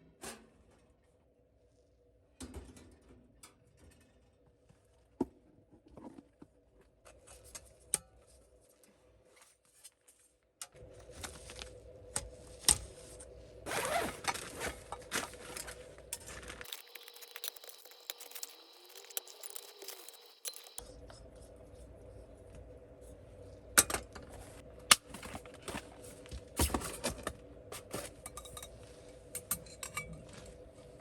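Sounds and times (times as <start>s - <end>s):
camping gear clicks and scrapes: 13.7s - 20.8s.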